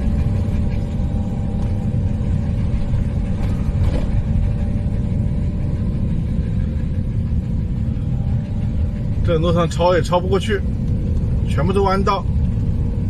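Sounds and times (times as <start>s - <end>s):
van engine and road rumble: 0.0s - 13.0s
vehicle jolt: 2.8s - 4.9s.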